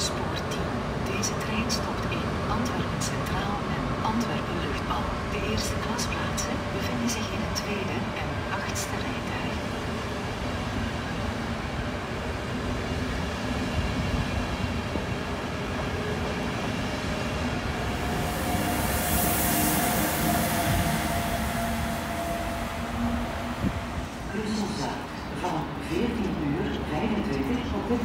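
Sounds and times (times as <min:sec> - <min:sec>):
train wheels on rail: 0:08.4 - 0:26.9
high hiss: 0:18.0 - 0:22.5.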